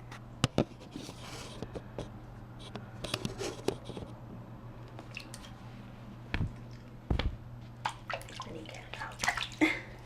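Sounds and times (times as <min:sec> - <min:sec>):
water splashing and sloshing: 0:05.0 - 0:05.8, 0:07.7 - 0:10.0.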